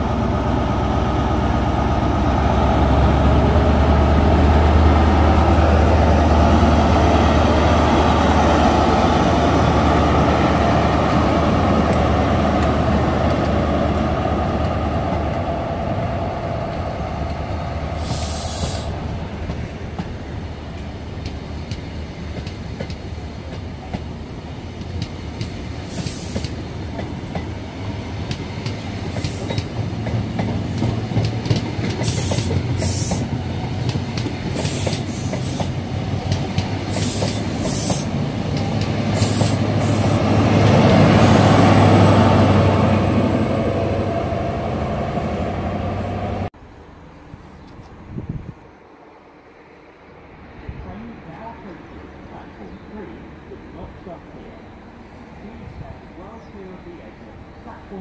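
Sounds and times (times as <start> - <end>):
diesel train engine: 0.0 - 47.3
train wheel clicks: 28.2 - 40.2.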